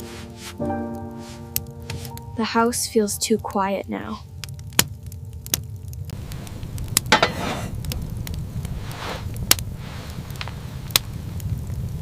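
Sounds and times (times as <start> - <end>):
soft rushing swells: 0.0 - 3.9
wood fire crackling: 0.0 - 12.0.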